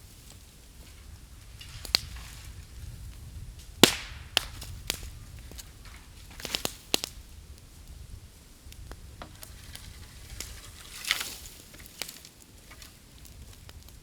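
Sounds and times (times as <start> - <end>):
low fire crackle: 0.0 - 14.0
bamboo popping and cracking: 1.5 - 7.4, 8.7 - 14.0.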